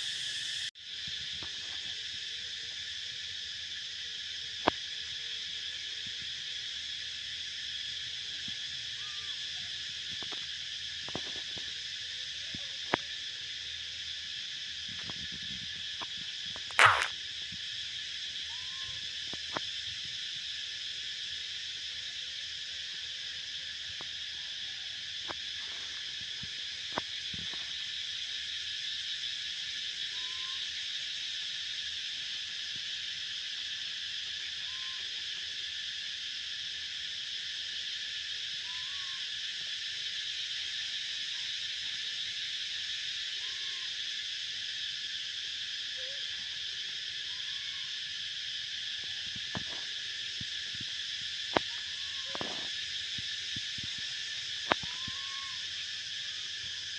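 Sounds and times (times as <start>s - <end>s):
faint chirps: 16.6s - 17.1s, 18.4s - 19.6s, 30.1s - 30.8s, 34.5s - 35.2s, 38.6s - 39.3s, 43.4s - 44.0s, 51.4s - 56.8s
jungle creatures calling: 16.7s - 17.1s, 38.6s - 39.3s, 47.2s - 48.0s, 51.6s - 52.7s, 54.3s - 55.9s.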